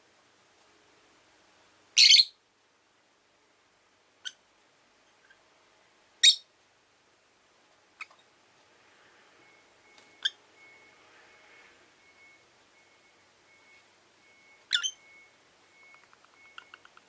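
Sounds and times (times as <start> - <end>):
lovebirds chirping: 2.0 - 2.4, 6.2 - 6.5, 9.5 - 10.9, 13.6 - 17.0.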